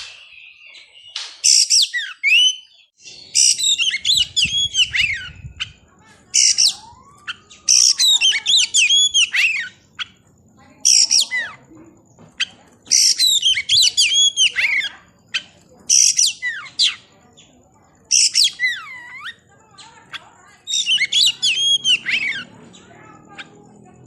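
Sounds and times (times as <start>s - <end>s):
bird singing whistles: 0.0s - 10.1s, 12.4s - 17.0s, 18.1s - 19.4s, 20.6s - 22.5s.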